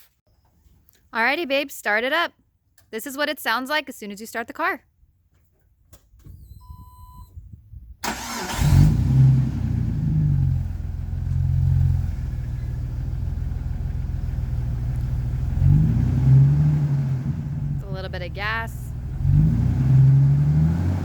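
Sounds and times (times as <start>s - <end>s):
short electronic beep: 6.4s - 7.4s
car engine cranking and idling: 8.0s - 21.0s.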